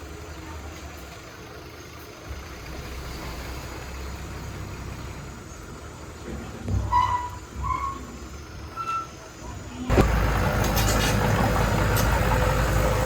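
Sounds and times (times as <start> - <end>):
heavy diesel engine rumbling: 0.0 - 13.0.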